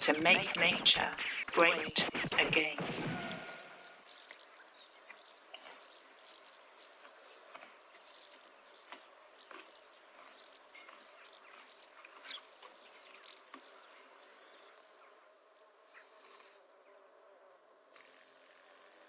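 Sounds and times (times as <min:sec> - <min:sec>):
crackles and ticks: 0:04.0 - 0:14.4
short bursts of hiss: 0:17.9 - 0:19.0.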